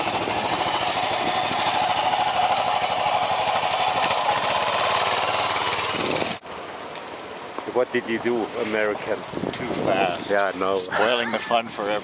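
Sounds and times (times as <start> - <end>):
motorcycle engine running hard: 0.0 - 6.4.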